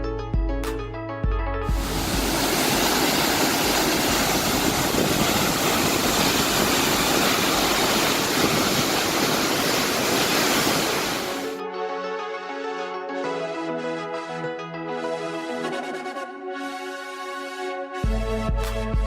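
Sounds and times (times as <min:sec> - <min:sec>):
waterfall rushing: 0:01.7 - 0:11.6.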